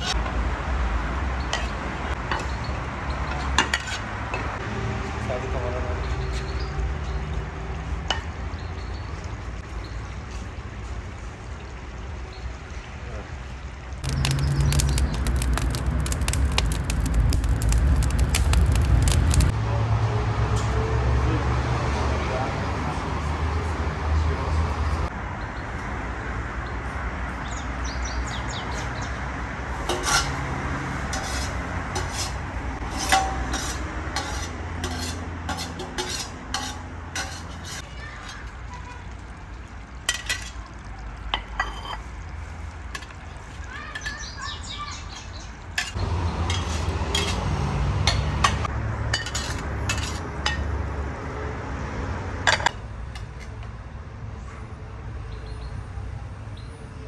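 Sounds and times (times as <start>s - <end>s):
metal utensils and dishes clinking: 0.0s - 0.4s, 1.4s - 4.6s, 6.1s - 8.9s, 14.0s - 19.6s, 29.7s - 38.6s, 40.0s - 44.3s, 45.1s - 51.0s, 52.4s - 53.7s.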